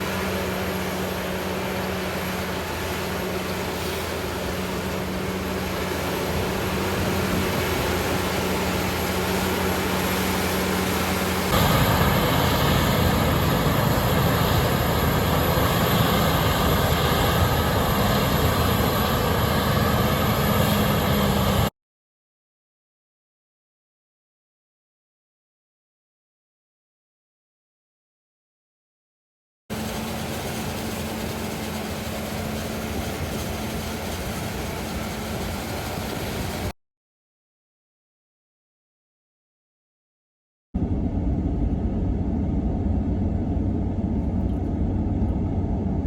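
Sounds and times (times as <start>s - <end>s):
harvesting machinery engine drone: 0.0s - 21.7s, 29.7s - 36.7s, 40.8s - 46.0s.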